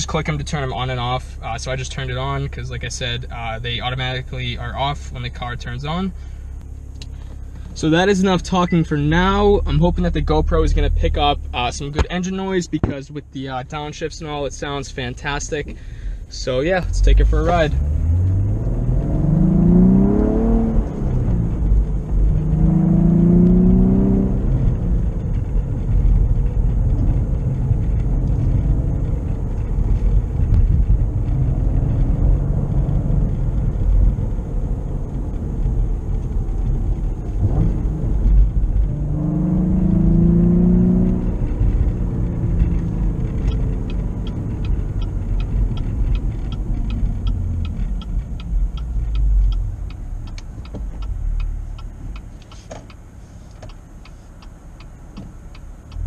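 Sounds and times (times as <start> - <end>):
car engine revving: 0.0 - 56.0
regular ticking: 40.3 - 56.0.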